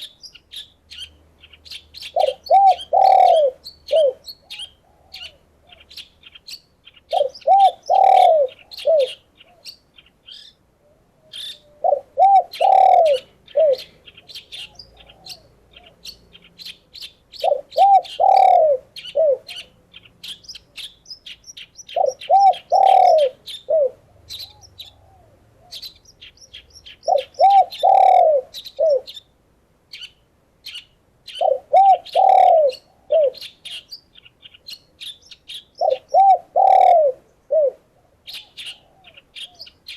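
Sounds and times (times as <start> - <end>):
songbirds chirping and twittering: 0.0 - 39.9
dove cooing: 2.0 - 6.0, 7.1 - 9.7, 10.8 - 16.2, 17.3 - 20.9, 21.9 - 26.0, 26.9 - 29.2, 31.3 - 33.8, 35.8 - 39.7.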